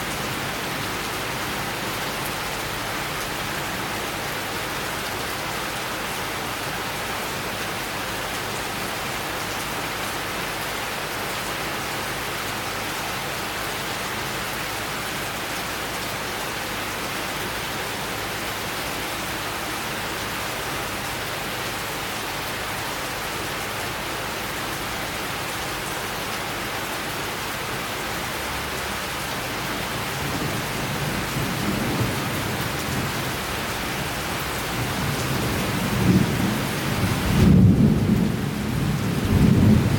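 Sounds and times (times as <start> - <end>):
steady rain falling: 0.0 - 39.9
low roll of thunder: 34.8 - 39.9.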